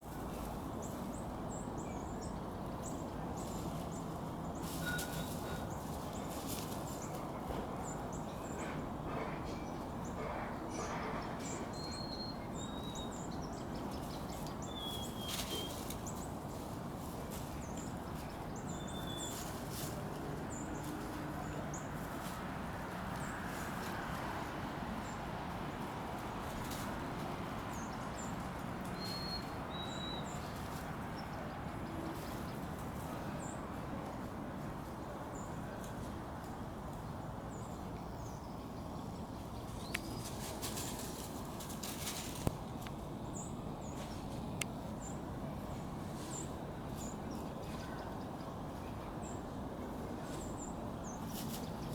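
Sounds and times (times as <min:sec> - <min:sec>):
steady outdoor hiss: 0:00.0 - 0:51.9
dry leaves rustling and crackling: 0:02.8 - 0:07.5, 0:13.8 - 0:37.2, 0:39.4 - 0:48.1, 0:49.9 - 0:51.9.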